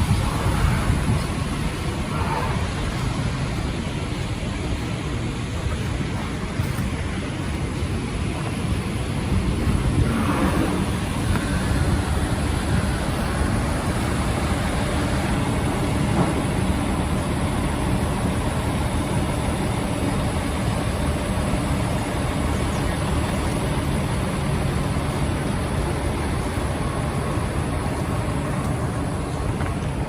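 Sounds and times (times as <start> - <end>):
city traffic din: 0.0 - 30.0
constant noisy hiss: 0.0 - 30.0.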